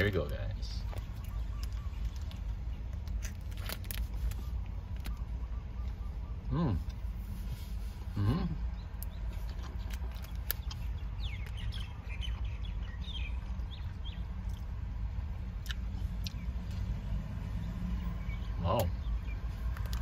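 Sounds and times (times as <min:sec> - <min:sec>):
low steady rumble: 0:00.0 - 0:20.0
faint bird chirps: 0:00.5 - 0:03.0, 0:04.0 - 0:14.3.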